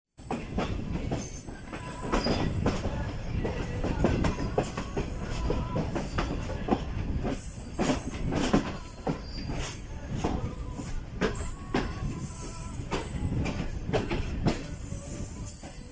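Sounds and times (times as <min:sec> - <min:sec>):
train wheels knocking on rail joints: 0:00.2 - 0:14.7
low train rumble: 0:00.2 - 0:15.9
wheel or brake squeals: 0:07.4 - 0:10.0, 0:14.6 - 0:15.9.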